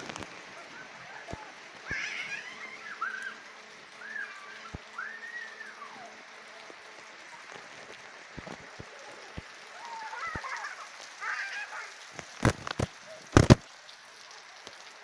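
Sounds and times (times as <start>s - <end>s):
steady rain falling: 0.0s - 15.0s
jumbled squawking chatter: 0.5s - 6.6s
high rising and falling call: 4.0s - 6.1s.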